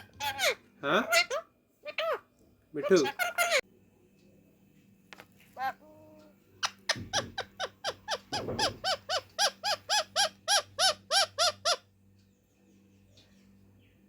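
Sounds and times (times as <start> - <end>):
parakeet screeching: 0.0 - 2.2, 2.8 - 3.6, 5.6 - 5.9, 6.6 - 11.9.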